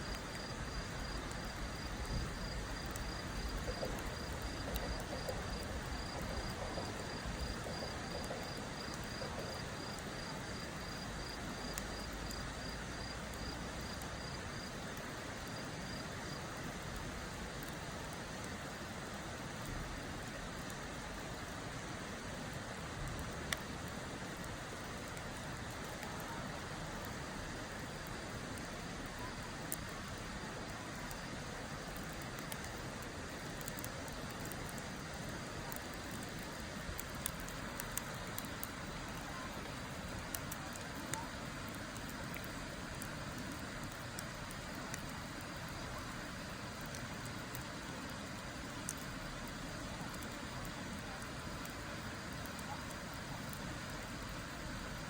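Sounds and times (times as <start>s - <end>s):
cricket chirping: 0.0s - 16.4s
wood fire hissing and popping: 0.0s - 55.0s.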